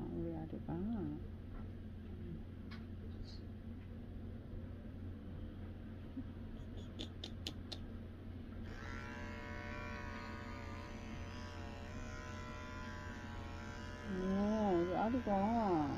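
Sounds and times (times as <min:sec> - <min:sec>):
pet clipper humming: 0:08.5 - 0:15.9
higher buzzing tone: 0:08.6 - 0:15.9.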